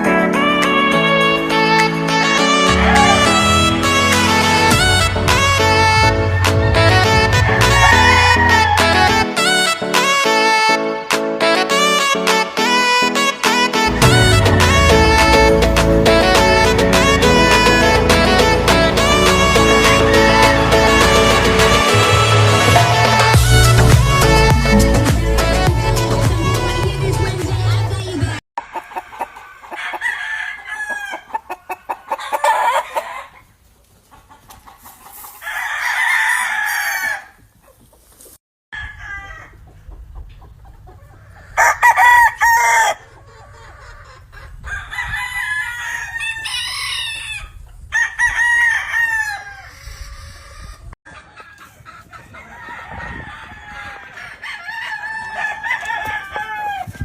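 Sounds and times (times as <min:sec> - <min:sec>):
roosters crowing: 0:02.4 - 0:09.8, 0:13.9 - 0:25.7, 0:28.6 - 0:33.5, 0:34.8 - 0:37.6, 0:38.7 - 0:39.9, 0:40.9 - 0:57.0
chickens clucking: 0:28.6 - 0:30.2, 0:30.8 - 0:35.4, 0:39.4 - 0:45.2, 0:49.5 - 0:54.6.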